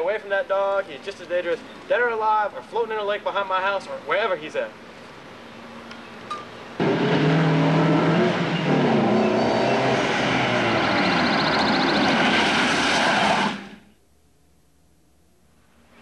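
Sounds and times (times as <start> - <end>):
car engine revving: 6.8 - 13.8.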